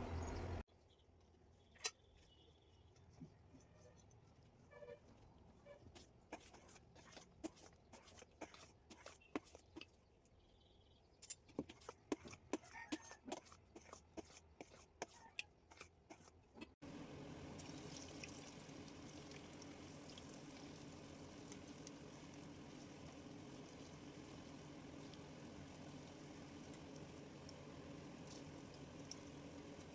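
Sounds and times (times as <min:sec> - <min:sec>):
batter frying in hot oil: 0:16.9 - 0:29.9.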